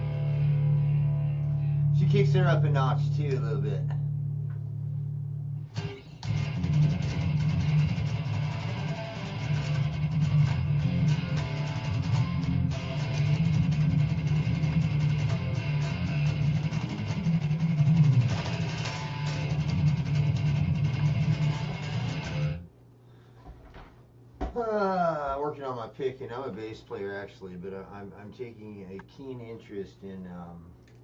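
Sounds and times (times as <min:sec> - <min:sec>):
electric guitar blues picking: 0:00.0 - 0:04.2, 0:05.6 - 0:22.6.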